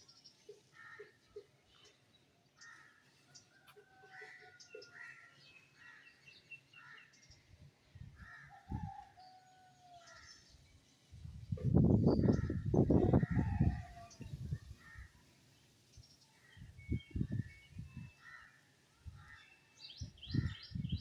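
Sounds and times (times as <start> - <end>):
birds chirping and whistling: 16.6 - 18.2.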